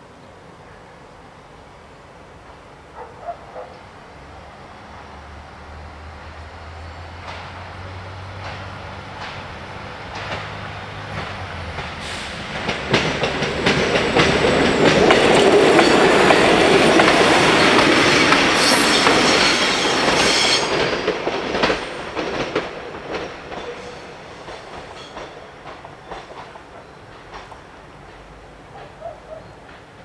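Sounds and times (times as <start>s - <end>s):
train wheels rumbling on rails: 2.4s - 30.0s
wheels clicking over rail joints: 8.4s - 30.0s
high wheel squeal: 17.4s - 21.0s.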